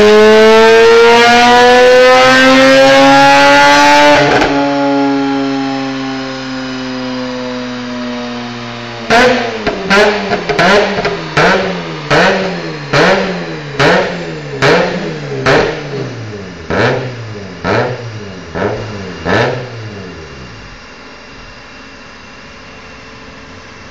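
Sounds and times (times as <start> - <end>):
rotary engine revving: 0.0 - 5.4, 9.0 - 20.8.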